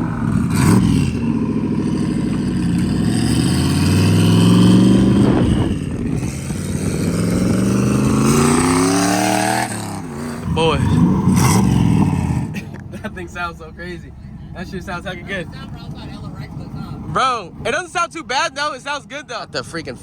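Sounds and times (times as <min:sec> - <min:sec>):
car engine revving hard: 0:00.0 - 0:12.7.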